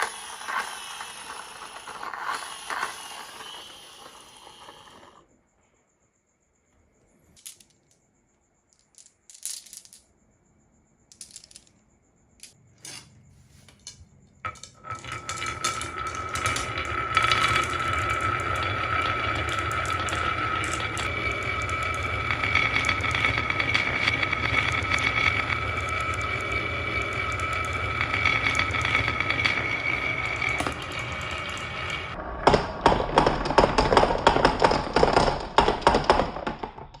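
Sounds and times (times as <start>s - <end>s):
marbles rolling on a marble run: 0.0s - 5.2s, 13.9s - 37.0s.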